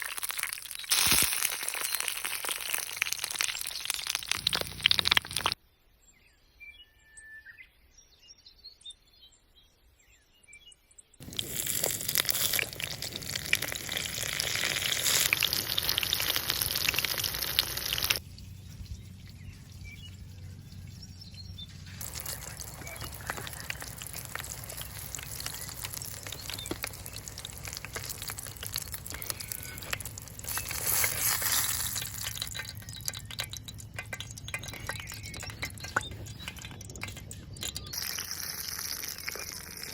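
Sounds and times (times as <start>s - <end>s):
birds chirping: 11.3s - 39.9s.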